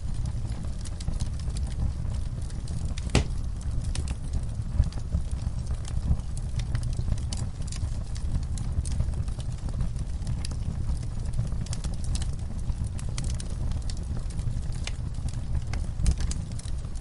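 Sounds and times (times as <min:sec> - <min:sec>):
fire crackling: 0:00.0 - 0:17.0
low roar of fire: 0:00.0 - 0:17.0
small pops: 0:03.1 - 0:03.4.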